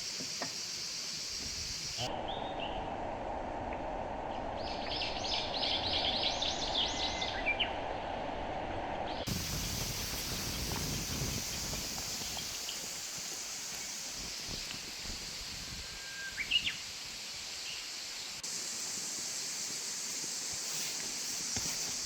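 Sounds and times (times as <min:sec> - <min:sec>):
rushing hiss of wind or water: 0:00.0 - 0:22.0
steady outdoor hiss: 0:00.0 - 0:22.0
songbird singing repeated notes: 0:09.1 - 0:16.9.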